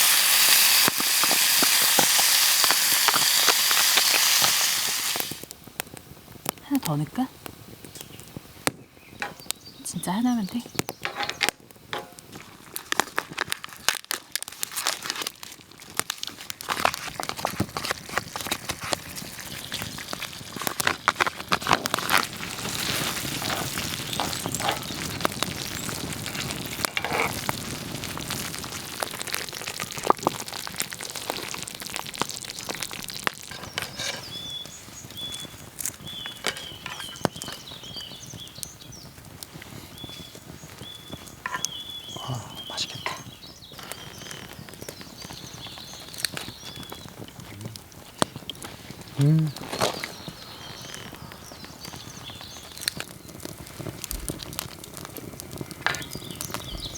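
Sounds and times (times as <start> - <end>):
food sizzling in a pan: 0.0 - 5.5, 9.0 - 56.9
utensils clicking and tapping: 36.4 - 37.2.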